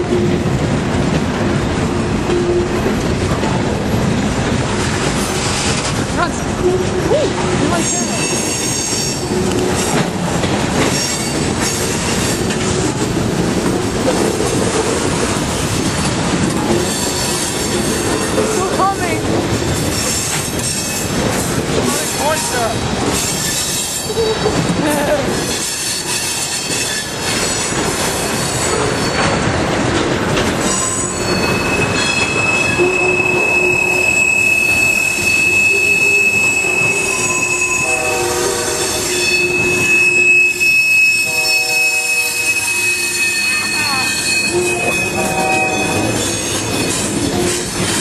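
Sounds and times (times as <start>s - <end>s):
train cars clattering over rails: 0.0s - 48.0s
high-pitched wheel squeal: 30.7s - 47.7s.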